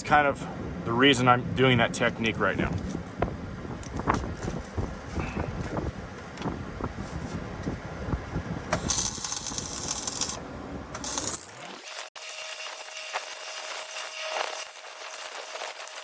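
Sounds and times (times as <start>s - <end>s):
wind buffeting microphone: 0.1s - 11.0s
welding arc crackle and hiss: 8.8s - 10.4s, 11.0s - 16.0s.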